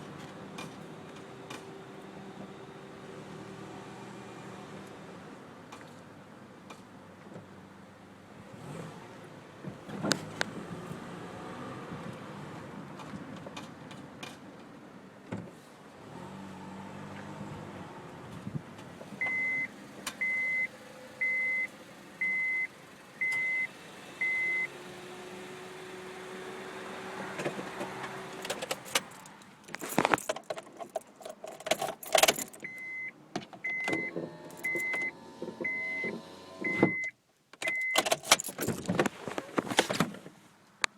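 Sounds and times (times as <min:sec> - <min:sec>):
car warning chime beeping: 0:19.2 - 0:24.7, 0:32.2 - 0:38.5
car engine running: 0:27.6 - 0:33.1, 0:33.9 - 0:37.1
handling clatter: 0:28.4 - 0:32.7, 0:34.5 - 0:35.0, 0:37.6 - 0:40.1
keys jangling: 0:28.4 - 0:32.7, 0:34.5 - 0:35.0, 0:37.6 - 0:39.0.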